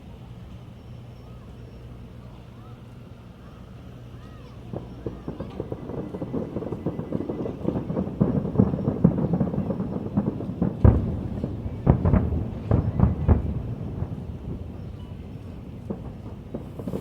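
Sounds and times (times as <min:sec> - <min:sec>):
fireworks booming: 0:03.9 - 0:17.0.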